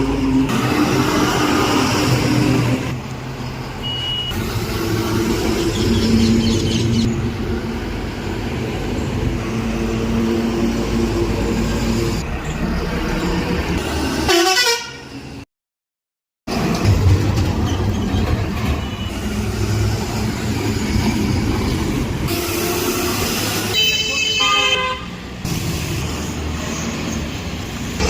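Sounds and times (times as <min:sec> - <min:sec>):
truck horn: 0:14.2 - 0:15.2, 0:22.2 - 0:25.3.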